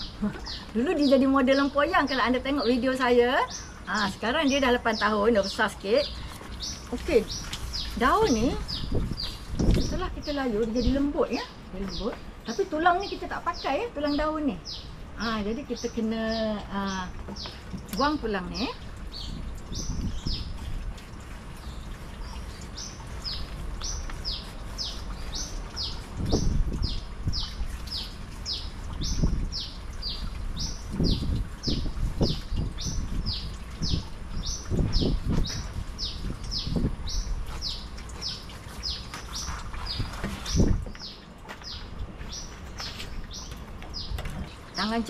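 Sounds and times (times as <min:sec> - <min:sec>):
leaf rustling and thumps: 0:06.3 - 0:12.4, 0:30.9 - 0:45.0.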